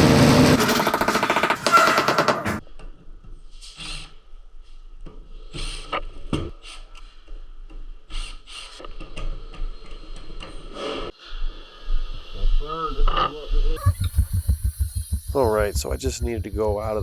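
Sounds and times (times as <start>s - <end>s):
intro music: 13.8s - 17.0s.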